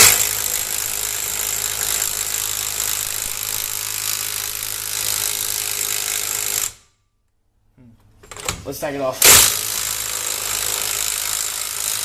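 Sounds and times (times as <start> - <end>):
impact wrench hammering: 0.0 - 6.8, 9.2 - 12.0.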